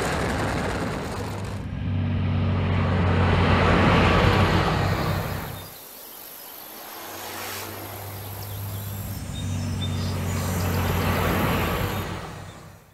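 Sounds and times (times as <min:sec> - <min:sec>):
car engine running low: 0:00.0 - 0:05.8.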